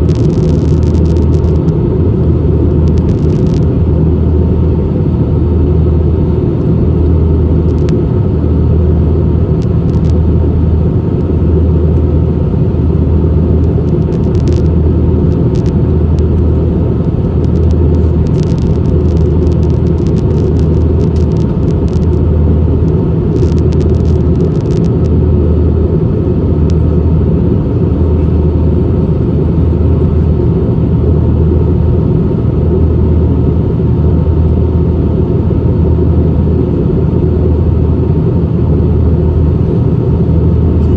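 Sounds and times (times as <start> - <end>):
deep throbbing: 0.0 - 4.6, 11.5 - 28.7
airplane cabin rumble: 0.0 - 40.9.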